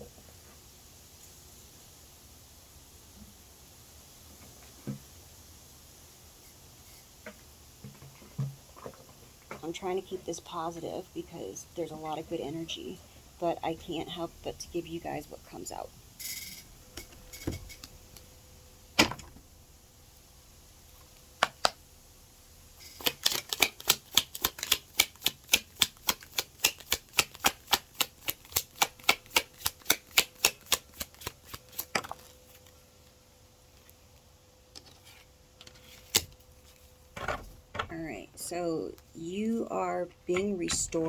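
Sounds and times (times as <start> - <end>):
cards being shuffled: 22.8 - 32.8, 34.8 - 36.9.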